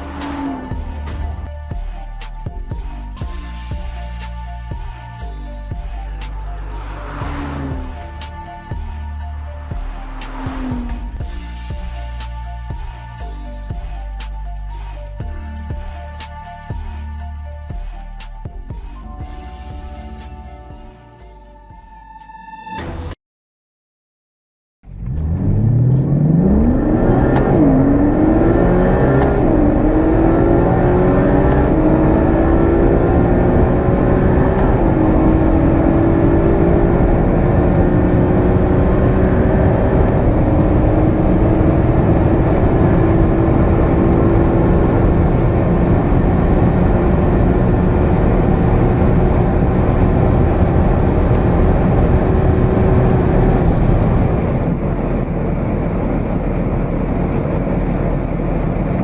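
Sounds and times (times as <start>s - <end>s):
car accelerating through gears: 6.6s - 8.2s, 24.9s - 54.7s.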